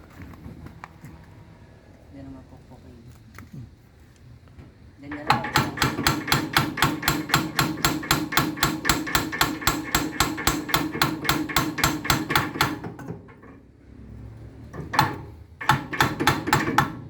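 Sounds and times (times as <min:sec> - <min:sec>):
rapid hammer blows on metal: 0:05.2 - 0:13.1, 0:15.0 - 0:17.0.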